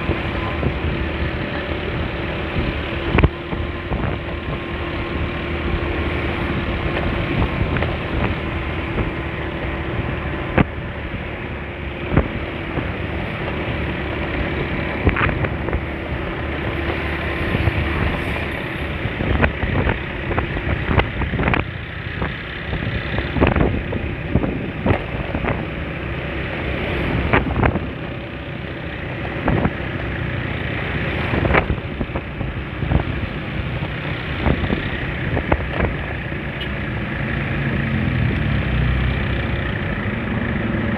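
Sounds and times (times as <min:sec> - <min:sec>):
wind on microphone: 0:00.0 - 0:26.3, 0:27.0 - 0:28.2, 0:29.1 - 0:36.4
scooter engine and road noise: 0:00.0 - 0:40.9.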